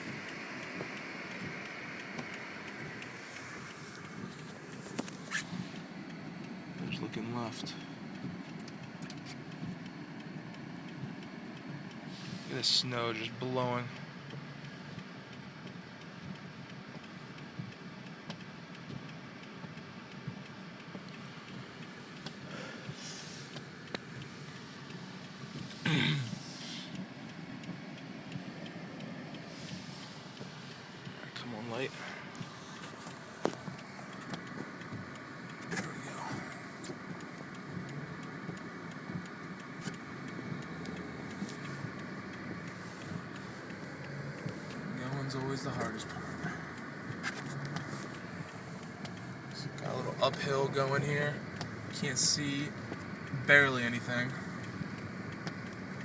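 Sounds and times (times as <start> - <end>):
car cabin engine and tyre noise: 0.0 - 56.0
faint ticks: 0.0 - 56.0
light clicks: 12.6 - 56.0.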